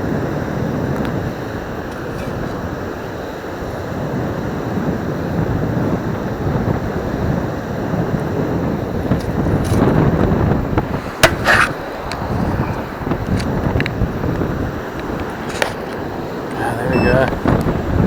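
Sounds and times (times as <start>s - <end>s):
wind buffeting microphone: 0.0s - 18.0s
sharp knock and rattle: 11.2s - 11.8s.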